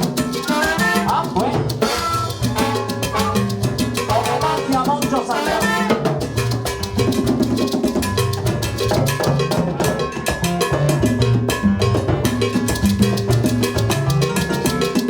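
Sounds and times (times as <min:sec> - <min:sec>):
bass: 0:00.0 - 0:15.0
congas: 0:00.0 - 0:15.0
piano: 0:00.0 - 0:15.0
trombones: 0:00.4 - 0:06.2.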